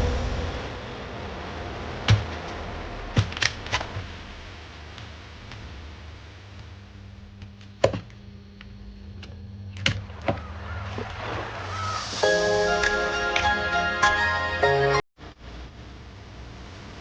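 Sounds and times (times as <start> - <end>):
low electrical hum: 0.0 - 11.6, 15.2 - 17.0
music: 12.2 - 15.0.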